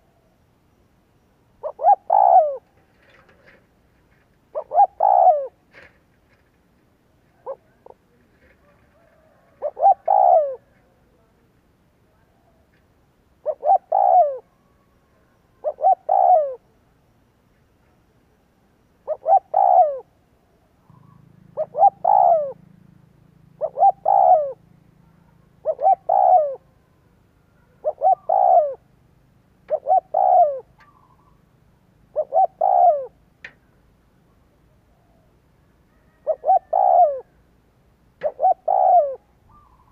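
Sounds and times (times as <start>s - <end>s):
dove cooing: 1.6s - 6.5s, 7.3s - 11.3s, 13.4s - 16.8s, 19.0s - 20.2s, 20.8s - 29.0s, 29.6s - 33.7s, 34.3s - 37.5s, 38.1s - 39.9s.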